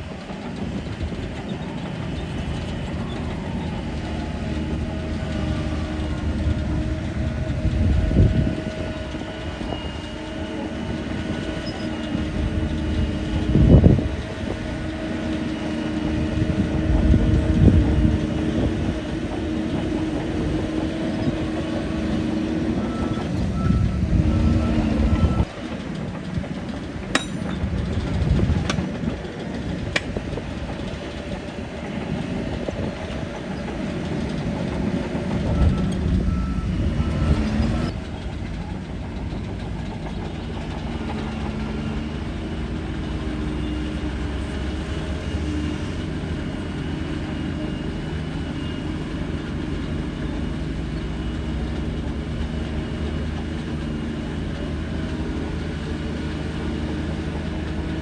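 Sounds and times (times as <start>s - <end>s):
bulldozer diesel engine running: 0.0s - 58.0s
sharp metal clanks: 27.1s - 27.7s.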